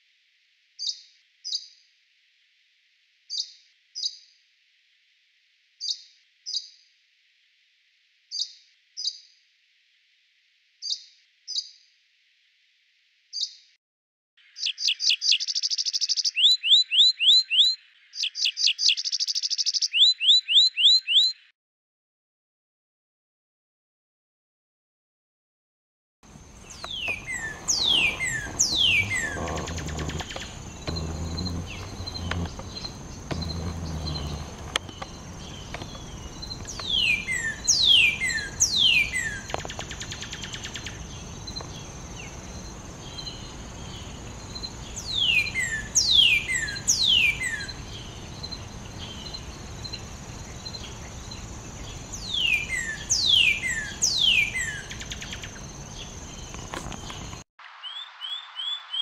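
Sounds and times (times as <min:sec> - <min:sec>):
bird whistles sliding down: 0:26.8 - 0:30.5.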